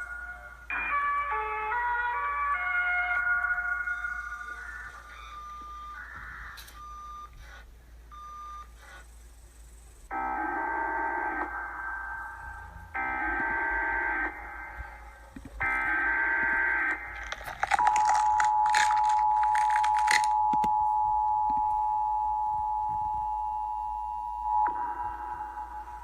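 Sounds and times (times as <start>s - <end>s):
crackling static: 0.0s - 7.8s, 8.6s - 23.5s, 24.3s - 26.0s
distorted electronic horn blasts: 10.1s - 19.2s
long steady tone: 10.1s - 26.0s.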